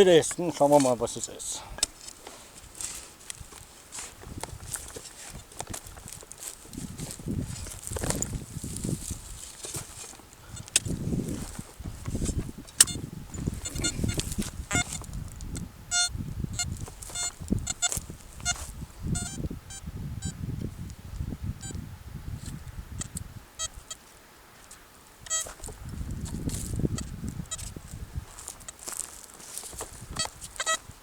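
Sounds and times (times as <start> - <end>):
soil being dug: 0.0 - 15.6, 16.6 - 19.0, 22.4 - 31.0
metal detector beeps: 10.5 - 20.4, 21.6 - 21.8, 23.0 - 24.0, 25.2 - 25.6, 26.6 - 27.8, 28.4 - 30.9.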